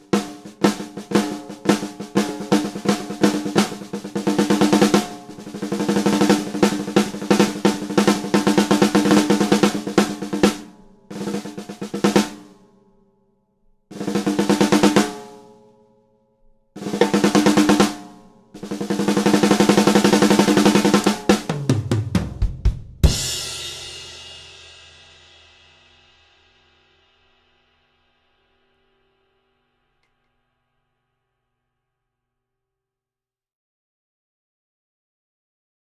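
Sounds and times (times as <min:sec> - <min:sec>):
lower drums fill: 0:00.0 - 0:12.6, 0:13.9 - 0:15.3, 0:16.8 - 0:27.4
snare drum rolls and fills: 0:00.0 - 0:12.6, 0:13.9 - 0:15.3, 0:16.8 - 0:24.9.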